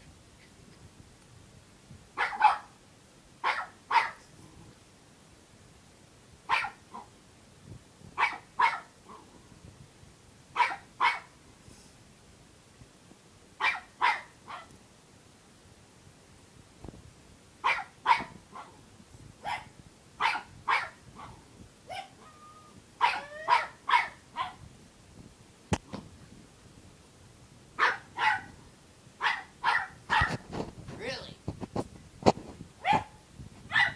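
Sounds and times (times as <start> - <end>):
puppy barking in high yaps: 2.2 - 2.8, 3.4 - 4.2, 6.5 - 7.1, 8.2 - 9.2, 10.6 - 11.3, 13.6 - 14.7, 17.6 - 18.8, 19.4 - 24.6, 27.8 - 28.6, 29.2 - 30.4, 32.8 - 33.9.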